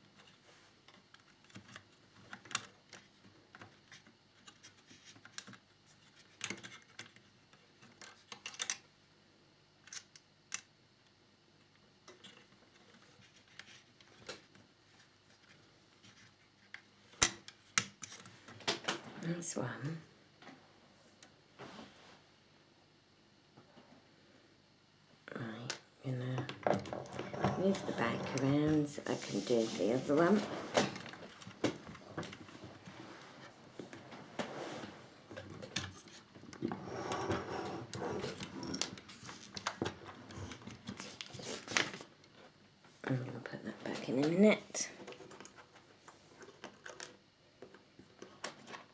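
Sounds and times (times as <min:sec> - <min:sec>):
soft rubbing of parts: 0:12.1 - 0:18.5, 0:26.3 - 0:43.1.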